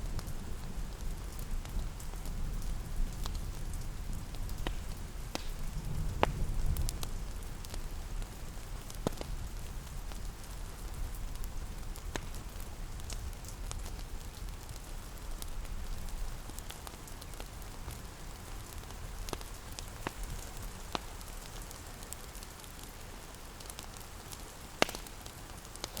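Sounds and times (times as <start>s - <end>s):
steady rain: 0.0s - 26.0s
burning wood popping and snapping: 3.2s - 3.6s, 4.2s - 26.0s.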